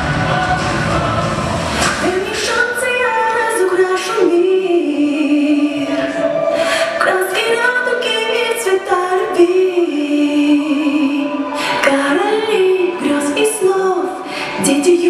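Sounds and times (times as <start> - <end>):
woman singing slow melody: 2.0 - 15.0.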